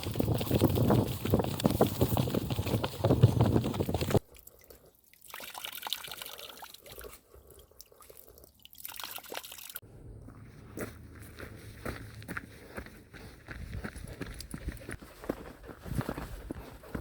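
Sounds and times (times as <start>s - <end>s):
running footsteps pounding: 0.0s - 4.2s, 10.8s - 17.0s.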